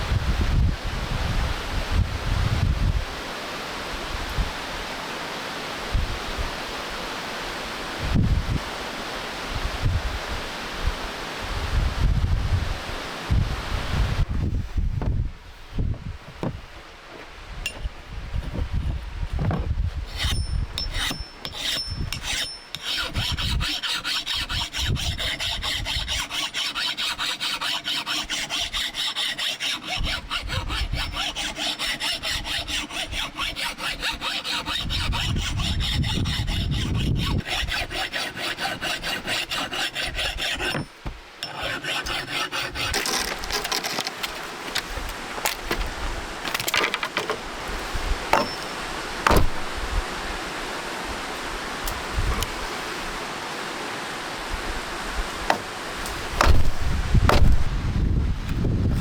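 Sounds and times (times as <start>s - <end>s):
hand saw cutting wood: 20.1s - 47.5s, 48.3s - 49.8s, 55.4s - 57.7s.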